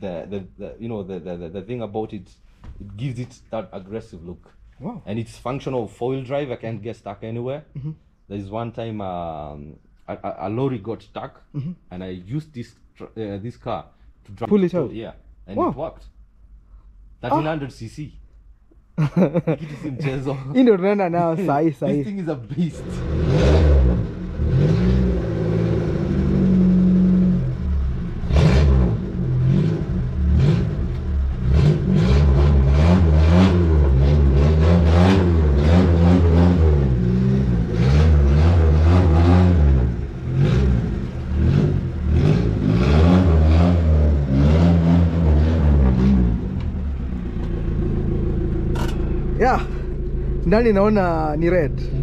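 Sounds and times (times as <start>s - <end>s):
engine revving: 22.6s - 52.0s.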